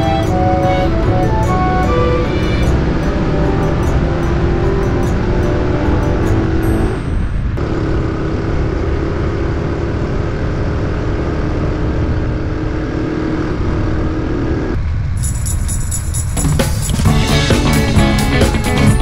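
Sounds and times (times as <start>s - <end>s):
small motorcycle engine running: 0.0s - 14.8s.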